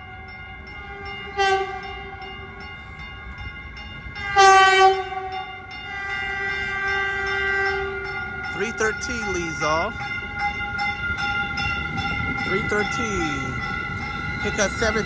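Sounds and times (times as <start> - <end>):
passenger train approaching: 0.0 - 15.0
train air horn: 0.9 - 1.9, 4.2 - 5.3, 5.9 - 8.2.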